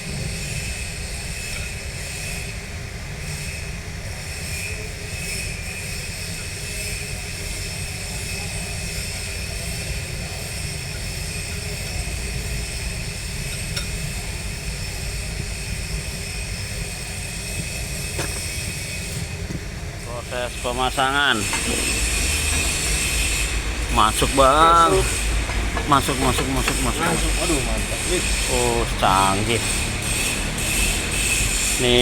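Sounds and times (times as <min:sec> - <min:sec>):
diesel engine rumbling: 0:06.9 - 0:32.0
high whine: 0:10.8 - 0:32.0.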